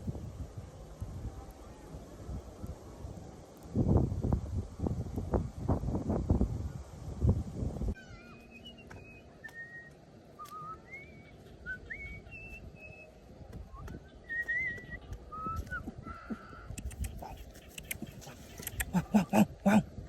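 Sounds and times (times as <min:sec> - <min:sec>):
whistled notes: 0:08.1 - 0:16.3.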